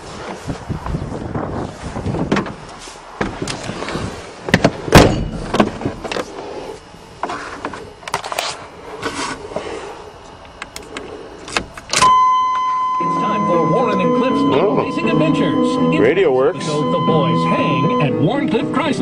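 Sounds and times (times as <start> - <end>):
pickup truck clunks and rattles: 4.5 - 6.2
high electronic tone: 12.0 - 19.0.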